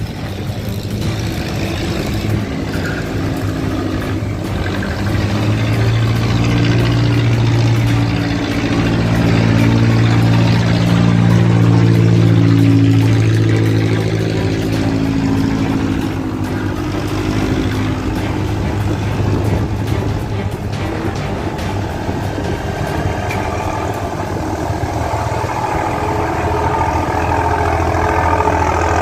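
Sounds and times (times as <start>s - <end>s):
boat engine humming: 0.0s - 29.0s.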